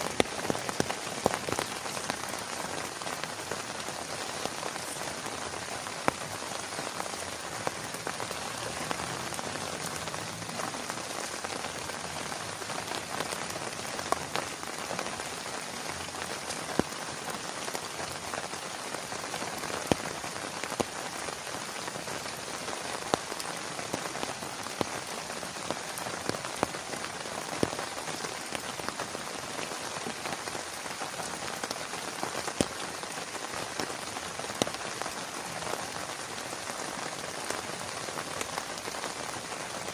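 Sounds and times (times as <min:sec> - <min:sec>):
single raindrops hitting close by: 0:00.0 - 0:39.9
steady rain falling: 0:00.0 - 0:39.9.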